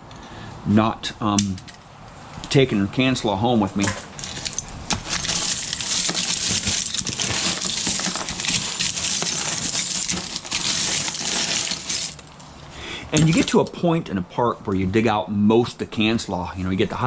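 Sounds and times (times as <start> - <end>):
metal scraps rattling and clinking: 3.8 - 13.6.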